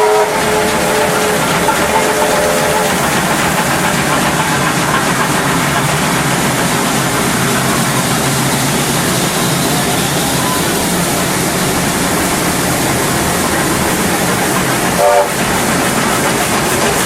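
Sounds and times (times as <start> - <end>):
wheels on rail: 0.0 - 17.0.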